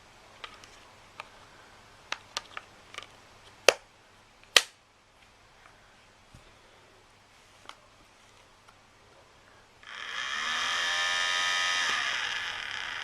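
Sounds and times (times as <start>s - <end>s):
small fan motor whine: 9.8s - 13.0s.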